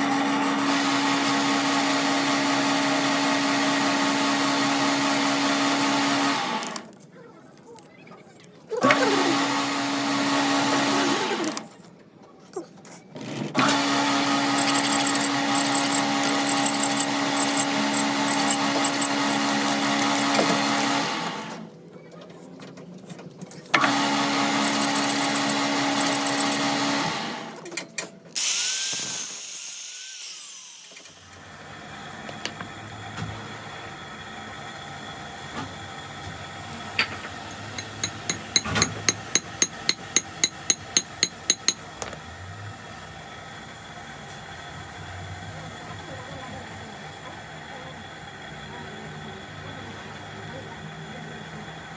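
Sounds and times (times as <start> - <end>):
power tool motor running: 0.0 - 6.9, 8.8 - 11.6, 13.6 - 21.7, 23.8 - 27.6, 28.4 - 31.7, 37.4 - 42.4.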